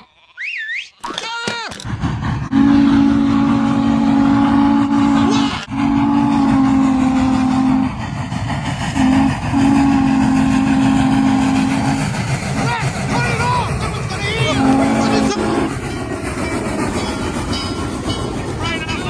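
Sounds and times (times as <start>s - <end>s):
moving train rumble: 1.7s - 19.0s
steam locomotive chime whistle: 2.5s - 8.0s, 8.9s - 12.0s, 14.4s - 19.0s.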